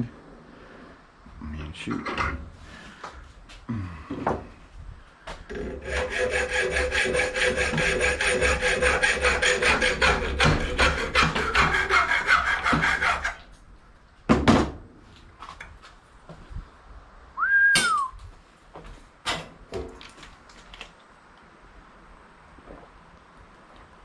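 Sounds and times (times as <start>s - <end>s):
saw cutting metal: 5.5s - 13.4s.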